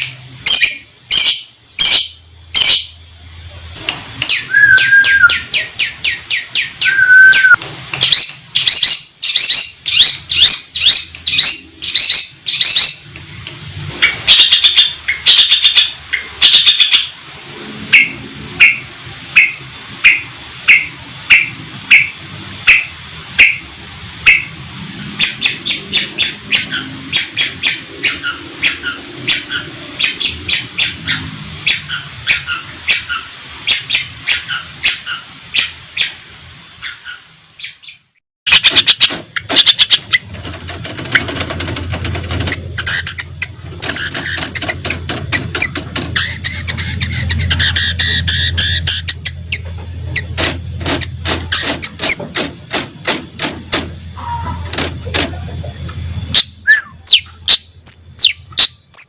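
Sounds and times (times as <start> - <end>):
bird call notes: 4.2 - 13.1
rapid bird twittering: 4.2 - 13.1, 14.0 - 17.2, 25.2 - 36.2, 36.8 - 50.4, 56.3 - 59.0.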